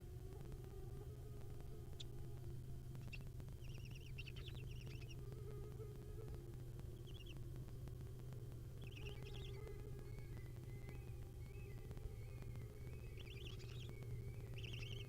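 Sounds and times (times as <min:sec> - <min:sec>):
low electrical hum: 0:00.0 - 0:15.0
owl chicks chirping: 0:02.9 - 0:05.3, 0:07.0 - 0:07.4, 0:08.8 - 0:15.0.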